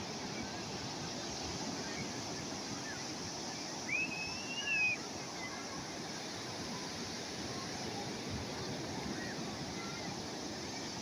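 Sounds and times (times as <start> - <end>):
sea waves washing on shore: 0.0 - 11.0.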